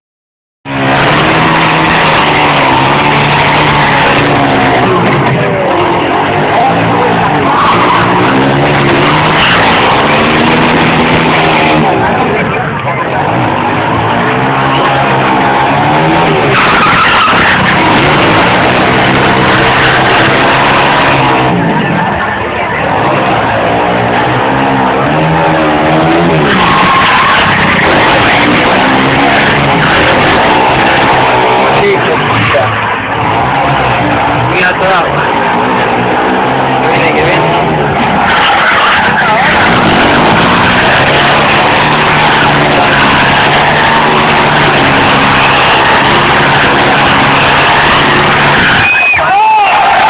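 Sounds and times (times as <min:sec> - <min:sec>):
tyre squealing: 0:00.7 - 0:12.5, 0:13.1 - 0:50.0
dense rushing noise: 0:00.7 - 0:50.0
motorcycle engine at high revs: 0:00.7 - 0:50.0.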